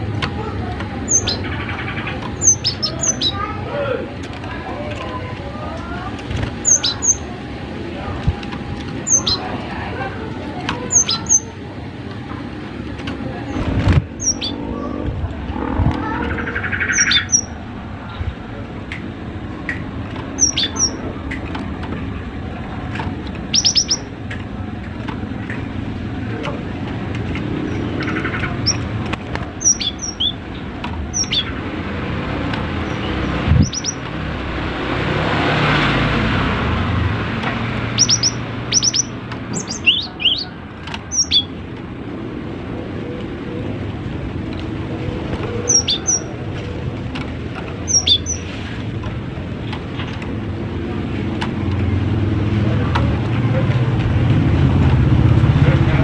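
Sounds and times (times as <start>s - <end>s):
steady background noise: 0.0s - 56.0s.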